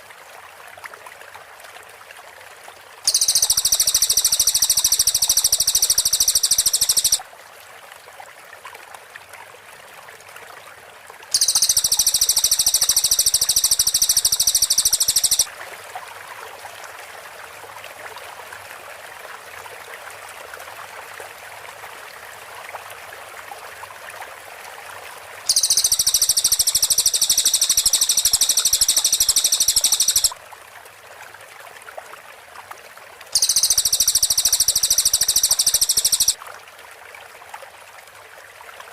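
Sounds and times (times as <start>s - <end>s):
bird high-pitched rapid trill: 3.1s - 7.2s, 11.4s - 15.5s, 25.5s - 30.3s, 33.4s - 36.4s.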